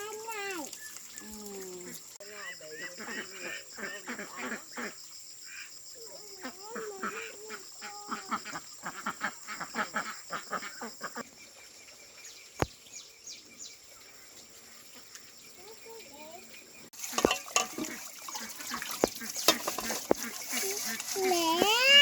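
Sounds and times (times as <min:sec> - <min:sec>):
ducks calling: 0:01.8 - 0:05.7, 0:06.5 - 0:11.2, 0:17.0 - 0:22.0.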